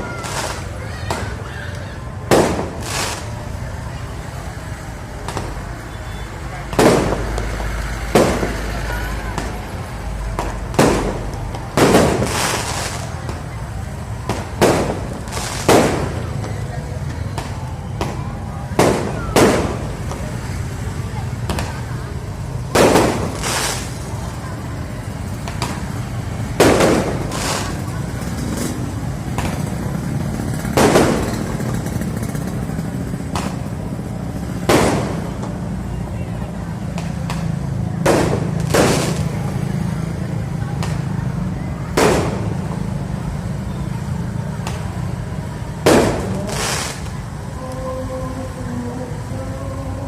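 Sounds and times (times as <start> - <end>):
fireworks bangs: 0.0 - 4.0, 5.1 - 47.8
small firework pops: 0.1 - 3.4, 5.2 - 5.6, 8.2 - 9.7, 10.3 - 13.6, 14.2 - 20.6, 21.4 - 22.0, 25.3 - 26.0, 26.6 - 29.8, 33.3 - 33.8, 34.6 - 39.5, 40.6 - 42.9, 44.5 - 45.1, 45.8 - 47.8
crackling hiss: 2.4 - 3.6, 5.2 - 16.6, 21.3 - 29.7, 44.3 - 47.8.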